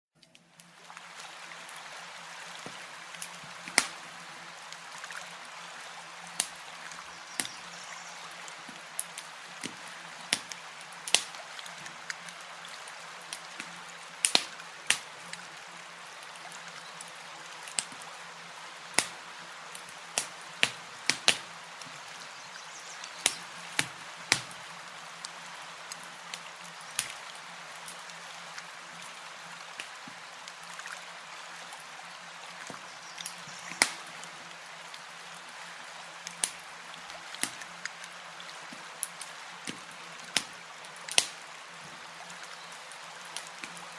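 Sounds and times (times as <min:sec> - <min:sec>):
soft steady hiss: 0:00.2 - 0:43.9
campfire wood pops: 0:02.6 - 0:04.0, 0:07.4 - 0:07.6, 0:08.7 - 0:11.4, 0:13.3 - 0:15.1, 0:17.7 - 0:18.0, 0:19.0 - 0:19.2, 0:19.8 - 0:21.9, 0:23.2 - 0:24.6, 0:27.0 - 0:27.2, 0:32.7 - 0:34.1, 0:37.4 - 0:37.7, 0:39.0 - 0:41.4.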